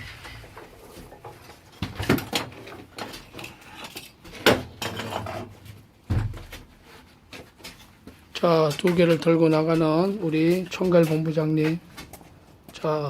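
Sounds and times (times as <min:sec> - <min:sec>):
dull thump: 0:06.1 - 0:06.6.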